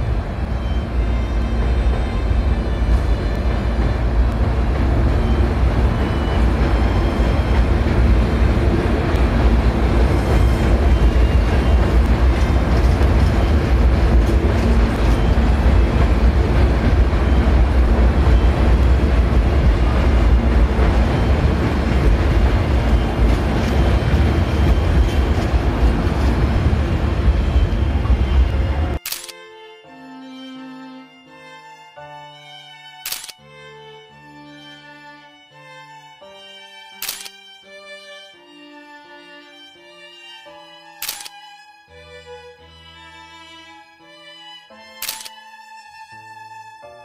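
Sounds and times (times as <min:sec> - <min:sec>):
electric train rumbling past: 0:00.0 - 0:29.1.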